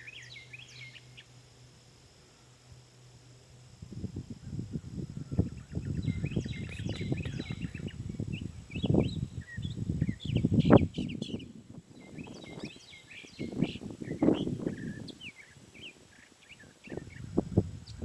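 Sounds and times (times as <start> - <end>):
songbird chirping: 0.0 - 1.4, 4.4 - 18.0
low rumble on microphone: 3.8 - 16.0, 16.8 - 18.0.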